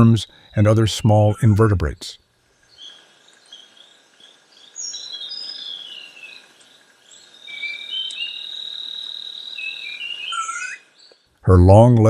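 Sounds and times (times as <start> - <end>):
high insect drone: 0.0 - 11.1
falling whistled bird notes: 7.5 - 10.9
high bird chirps and whistles: 7.5 - 10.9.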